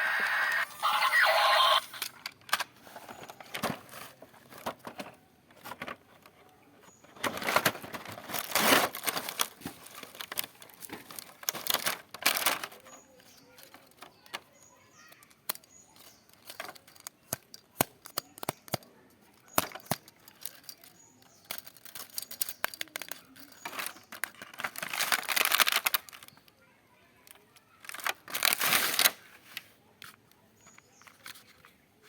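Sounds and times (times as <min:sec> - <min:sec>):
rustling: 0:02.8 - 0:18.2.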